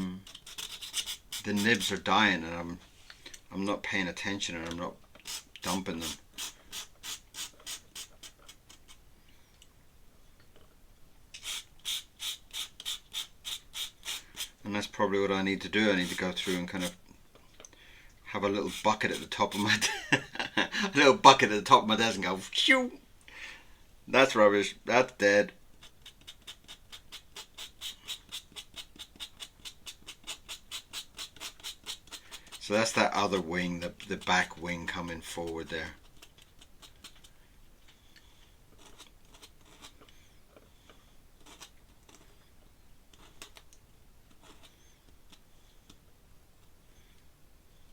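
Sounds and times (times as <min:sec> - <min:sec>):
pen scratching on paper: 0:00.2 - 0:02.0, 0:15.8 - 0:17.0, 0:18.5 - 0:19.8, 0:25.8 - 0:37.2, 0:38.8 - 0:40.1, 0:41.4 - 0:42.4, 0:43.1 - 0:43.6, 0:44.3 - 0:45.4.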